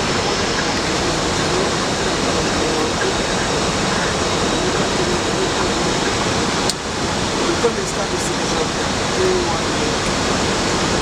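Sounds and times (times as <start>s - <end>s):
air rushing in cockpit: 0.0s - 11.0s.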